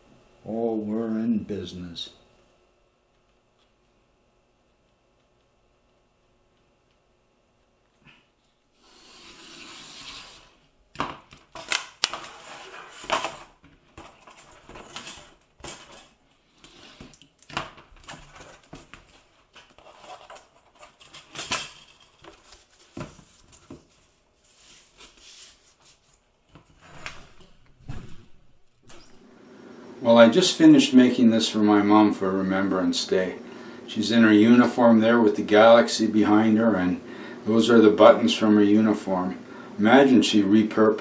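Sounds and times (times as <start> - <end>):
rustling scrape: 12.2 - 17.0, 19.7 - 21.0, 22.3 - 26.2.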